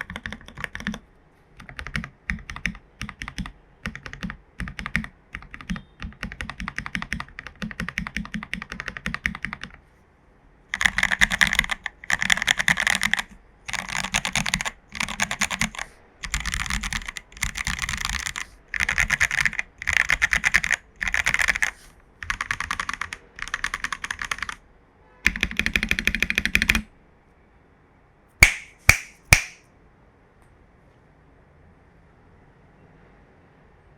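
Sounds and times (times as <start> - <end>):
mechanical keyboard typing: 0.0 - 1.0, 1.6 - 9.8, 10.7 - 24.6, 25.3 - 26.9.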